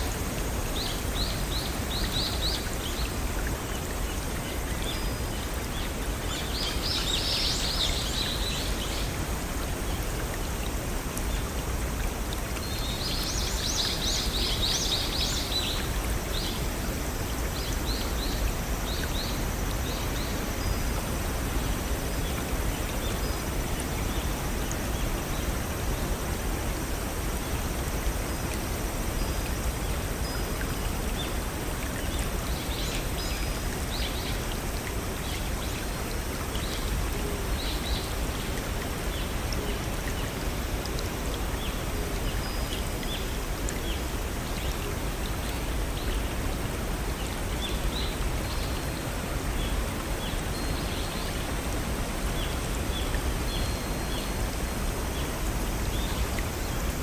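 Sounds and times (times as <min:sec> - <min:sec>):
stream and waterfall splashing: 0:00.0 - 0:57.0.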